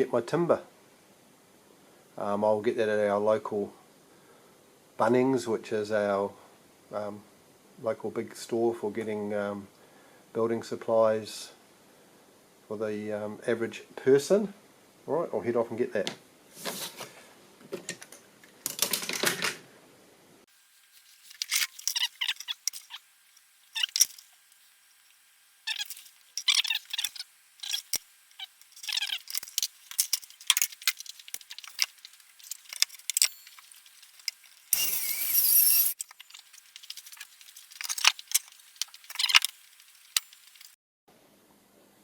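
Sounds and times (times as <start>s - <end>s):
small hard objects clicking: 25.7s - 40.8s.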